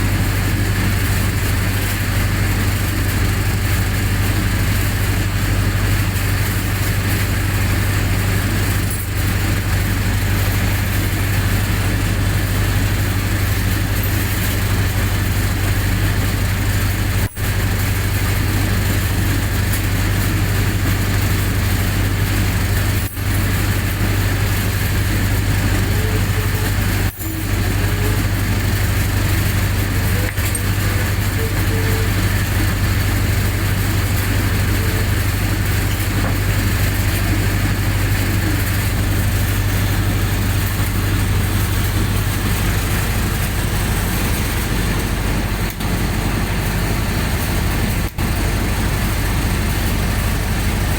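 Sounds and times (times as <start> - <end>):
generator engine humming: 0.0 - 50.9.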